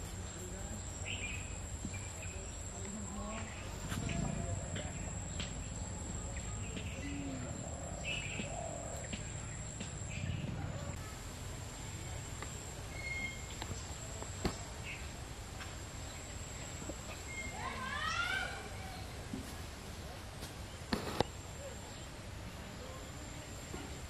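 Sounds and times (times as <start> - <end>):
birds chirping: 0.0 - 19.3, 19.9 - 23.7
low background rumble: 0.9 - 12.9
whistled bird note: 12.9 - 13.5.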